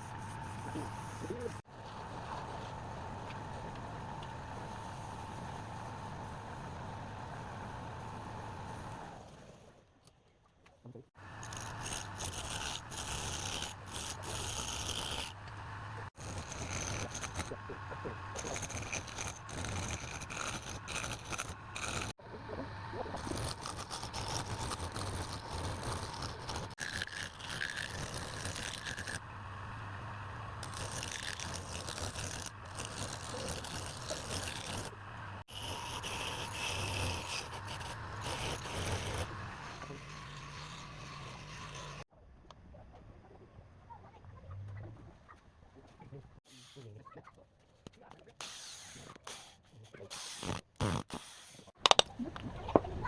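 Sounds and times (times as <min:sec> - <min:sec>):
tool scraping wood: 0:00.0 - 0:01.6, 0:11.4 - 0:22.2, 0:23.1 - 0:29.2, 0:30.6 - 0:42.0
low machine hum: 0:13.6 - 0:26.8, 0:27.6 - 0:42.0.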